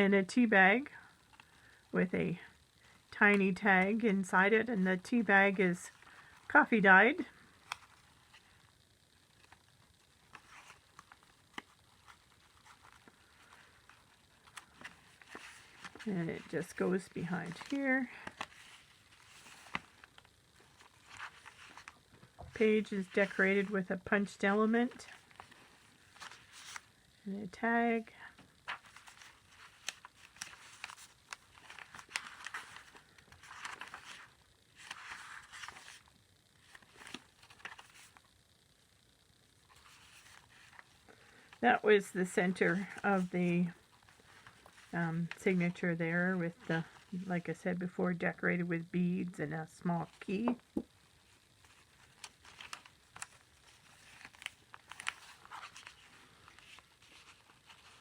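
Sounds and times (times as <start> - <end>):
paper pages rustling: 5.9 - 8.7, 9.3 - 27.0, 28.4 - 38.3, 39.6 - 41.8, 42.4 - 45.8, 50.1 - 58.0.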